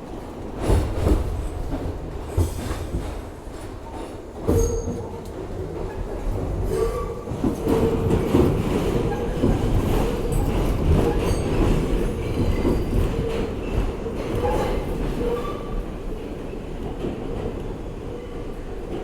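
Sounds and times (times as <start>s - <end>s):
subway train rumbling over rails: 0.0s - 19.0s.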